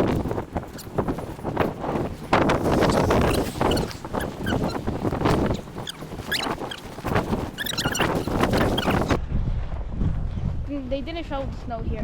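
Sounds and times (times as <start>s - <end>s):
footsteps crunching in snow: 0.0s - 9.2s.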